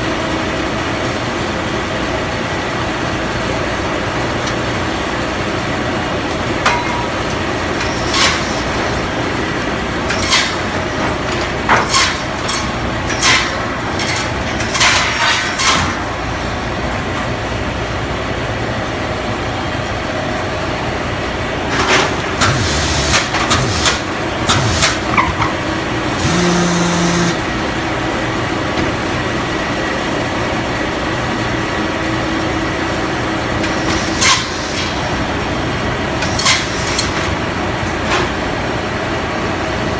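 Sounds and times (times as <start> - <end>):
sawmill engine drone: 0.0 - 36.2
metallic clanks and knocks: 21.8 - 26.4
short whine: 24.5 - 27.6.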